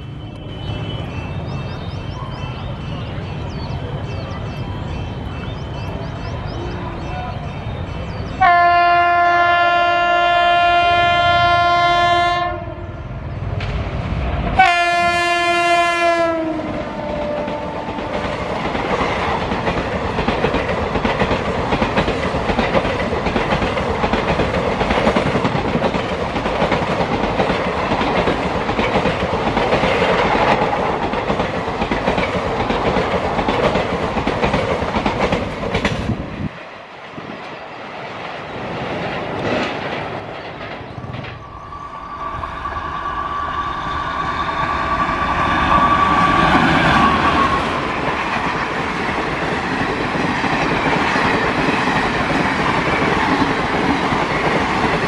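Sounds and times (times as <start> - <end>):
train wheels on rail: 0.0 - 55.0
locomotive air horn blasts: 8.4 - 12.8, 14.6 - 18.1.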